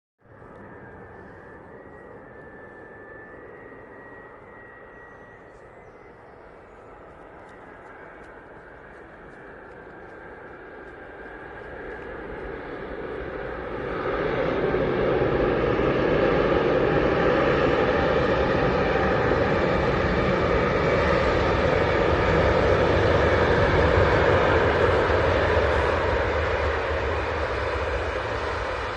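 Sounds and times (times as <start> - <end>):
jet airliner roaring past: 0.2 - 28.9.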